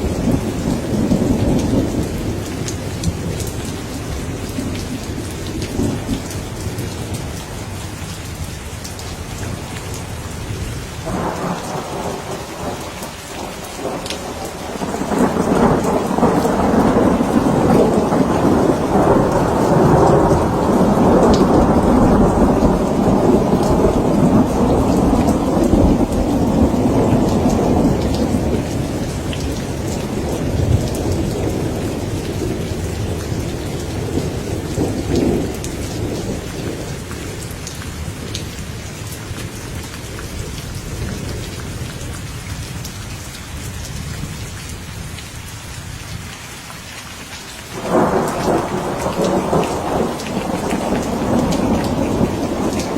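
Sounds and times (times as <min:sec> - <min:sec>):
steady rain: 0:00.0 - 0:52.9
thunder rolling: 0:11.0 - 0:36.8, 0:47.8 - 0:52.9
raindrop ticks: 0:47.7 - 0:52.9.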